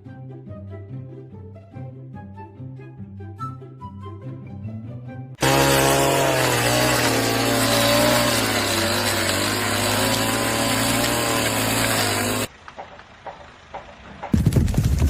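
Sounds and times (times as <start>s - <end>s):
power tool running: 5.4s - 12.5s.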